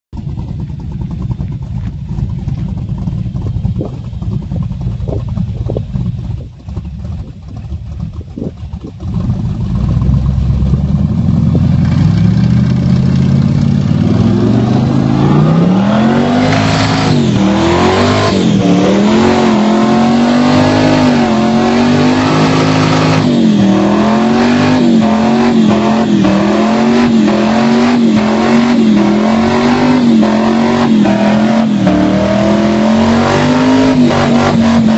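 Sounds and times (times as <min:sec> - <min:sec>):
muffled car engine idling: 0:00.1 - 0:20.2
car engine revving high: 0:09.0 - 0:34.9.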